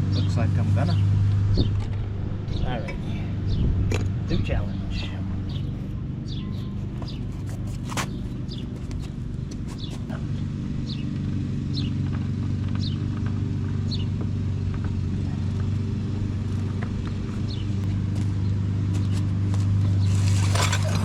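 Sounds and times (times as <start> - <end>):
vehicle engine humming: 0.0 - 21.0
bird chirping: 2.5 - 11.1, 11.7 - 12.0.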